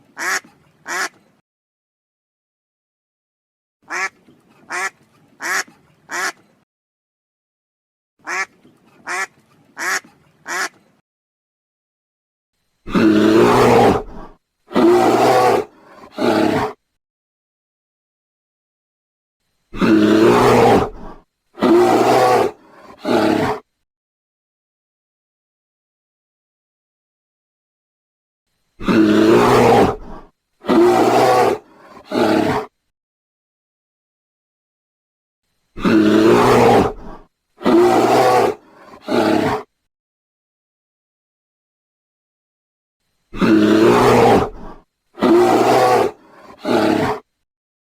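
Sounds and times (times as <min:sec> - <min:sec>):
duck quacking: 0:00.2 - 0:01.2, 0:03.9 - 0:06.4, 0:08.2 - 0:10.8
tiger roaring: 0:12.9 - 0:16.8, 0:19.8 - 0:23.7, 0:28.8 - 0:32.7, 0:35.8 - 0:39.7, 0:43.4 - 0:47.3.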